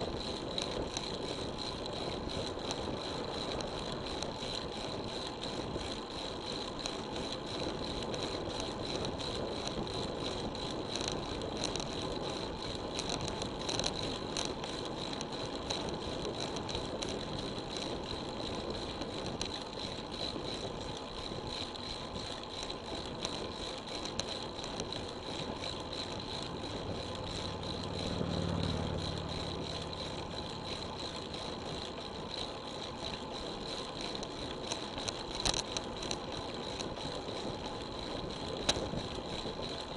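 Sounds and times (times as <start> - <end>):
wind and bicycle tyre noise: 0.0 - 39.9
vehicle engine passing: 27.2 - 31.2.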